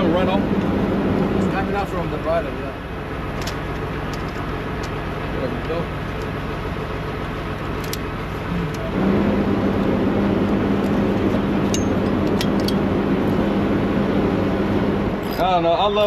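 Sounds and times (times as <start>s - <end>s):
steady low hum: 0.0s - 16.0s
vehicle engine running: 0.0s - 16.0s.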